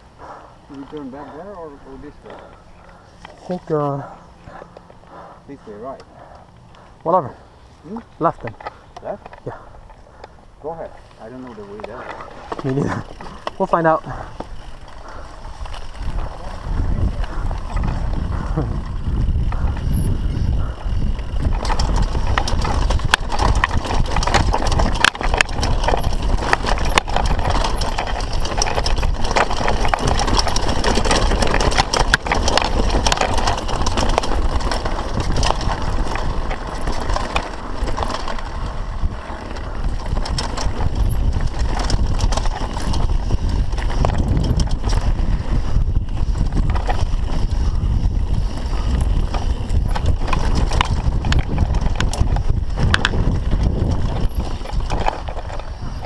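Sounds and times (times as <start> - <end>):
bike chain and frame rattling: 0.0 - 56.0
bike tyres on dirt and rocks: 0.0 - 56.0
wind on microphone: 14.0 - 56.0.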